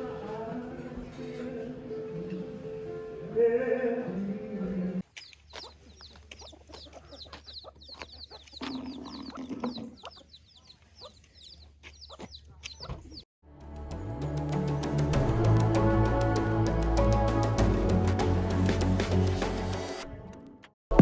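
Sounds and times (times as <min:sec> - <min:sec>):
chickens clucking: 0:05.0 - 0:13.2
chicks peeping: 0:05.0 - 0:13.2
music: 0:13.4 - 0:21.0.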